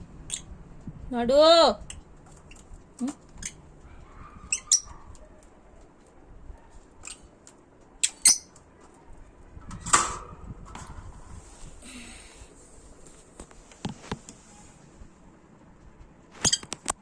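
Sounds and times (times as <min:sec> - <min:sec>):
small birds chirping and squawking: 0:00.2 - 0:00.6, 0:01.8 - 0:05.8, 0:06.6 - 0:09.8.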